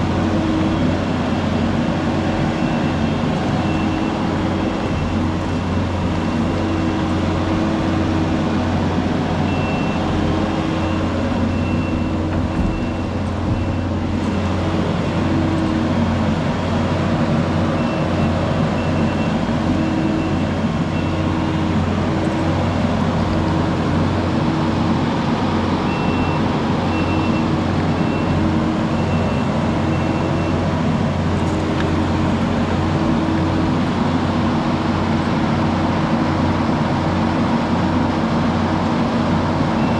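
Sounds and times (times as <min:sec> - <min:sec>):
heavy diesel engine running: 0:00.0 - 0:39.9
back-up alarm beeping: 0:02.5 - 0:07.1, 0:09.5 - 0:14.1, 0:17.8 - 0:21.7, 0:25.9 - 0:30.7.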